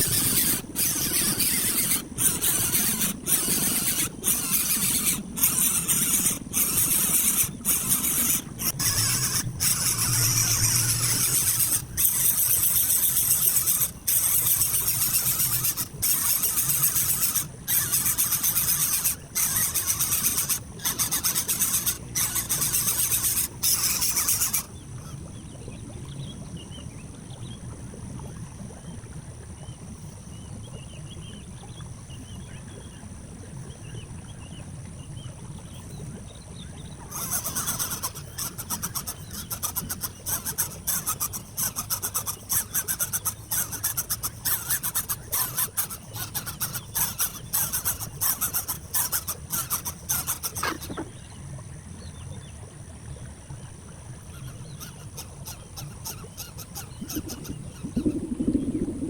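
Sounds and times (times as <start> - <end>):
scratchy rustling and rubbing: 0.0 - 24.7, 37.1 - 51.0.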